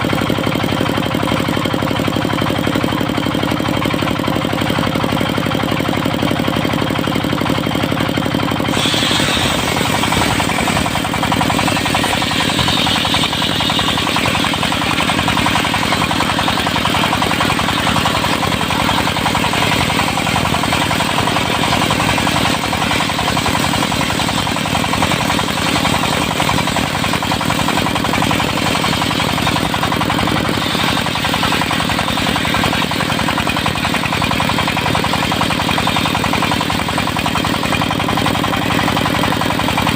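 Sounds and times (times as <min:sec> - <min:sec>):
diesel engine running: 0:00.0 - 0:39.9
circular saw blade cutting wood: 0:08.0 - 0:39.2.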